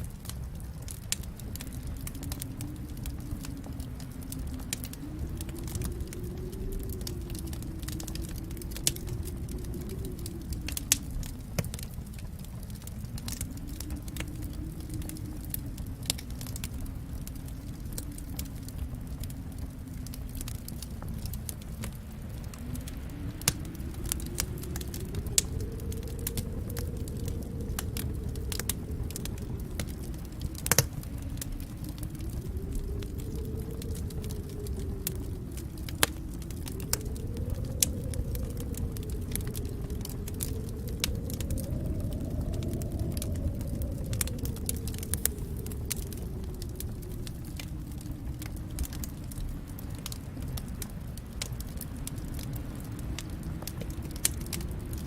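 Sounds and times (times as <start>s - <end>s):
fire snapping and popping: 0.0s - 55.0s
low rumble of burning: 0.0s - 55.0s.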